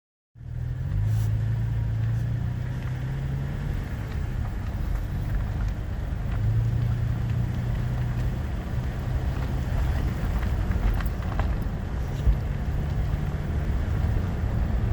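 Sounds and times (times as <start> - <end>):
road noise: 0.4 - 14.9
vehicle engine drone: 0.4 - 14.9.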